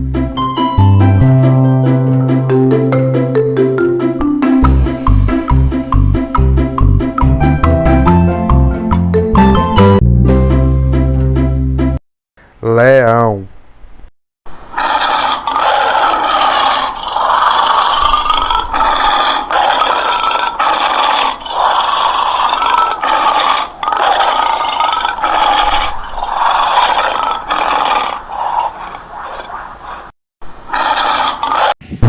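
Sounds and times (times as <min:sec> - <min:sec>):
lion growling: 0:14.8 - 0:29.7.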